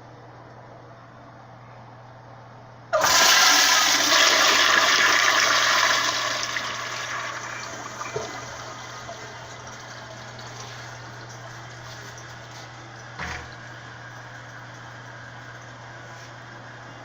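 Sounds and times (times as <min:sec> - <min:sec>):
toilet flushing: 0:03.0 - 0:14.3.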